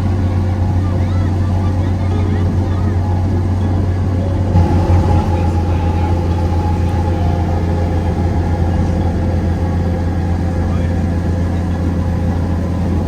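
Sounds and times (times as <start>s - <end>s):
low engine drone: 0.0s - 13.0s
higher hum: 4.3s - 13.0s.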